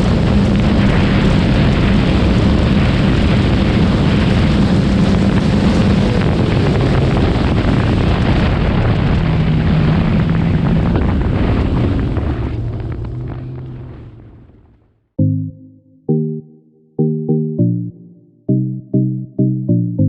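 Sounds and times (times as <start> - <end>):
jet ski engine running hard: 0.0 - 7.6
rush of wind and water: 0.0 - 14.0.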